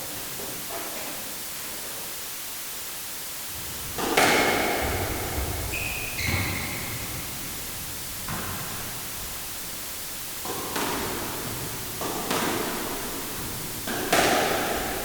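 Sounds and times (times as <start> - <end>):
room noise hiss: 0.0 - 15.0
low thuds: 3.5 - 10.5
high-pitched squeaks: 5.6 - 7.1.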